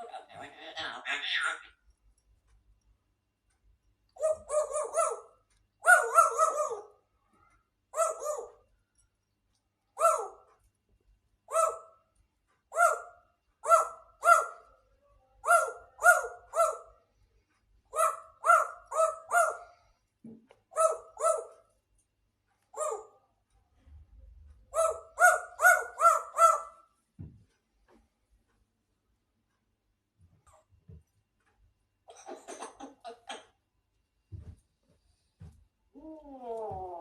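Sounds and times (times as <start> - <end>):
parrot barking calls: 0.0 - 1.8, 4.2 - 7.1, 7.9 - 8.7, 10.0 - 10.5, 11.5 - 12.0, 12.6 - 14.7, 15.4 - 17.0, 17.9 - 19.8, 20.7 - 21.6, 22.7 - 23.2, 24.7 - 27.0.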